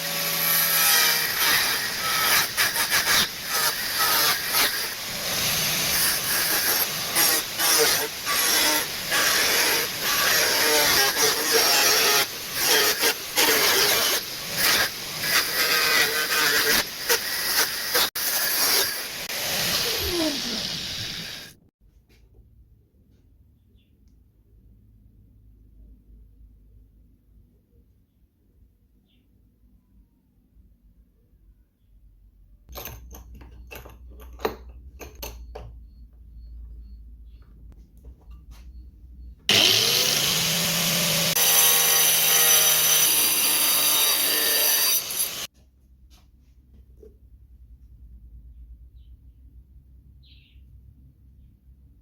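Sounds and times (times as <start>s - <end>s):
angle grinder cutting: 0.0s - 21.6s, 39.5s - 45.5s
metallic clinks and knocks: 32.7s - 35.9s.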